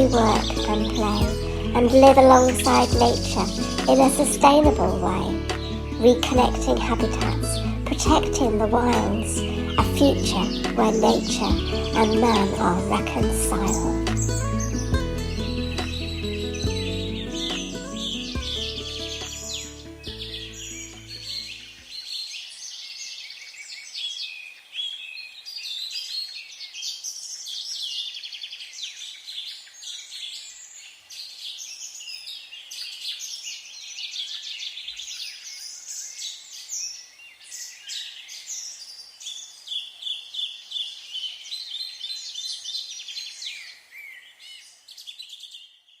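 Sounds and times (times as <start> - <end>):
background music: 0.0 - 21.6
songbirds singing and chirping: 0.0 - 46.0.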